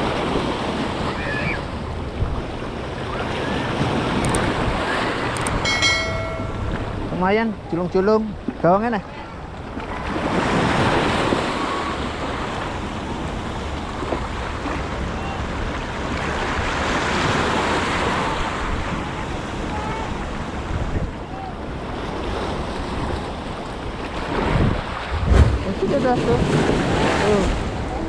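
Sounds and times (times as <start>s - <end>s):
sea waves washing in: 0.0s - 28.0s
wind on microphone: 22.2s - 28.0s.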